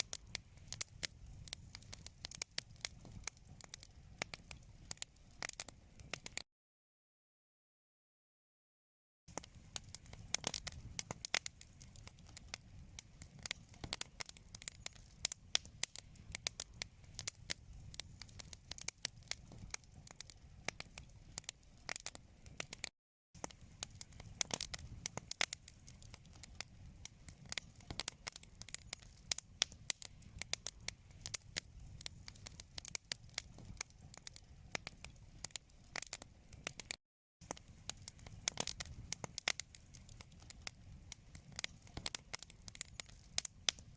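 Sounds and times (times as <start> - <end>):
wood fire crackling: 0.0 - 6.4, 9.3 - 43.9.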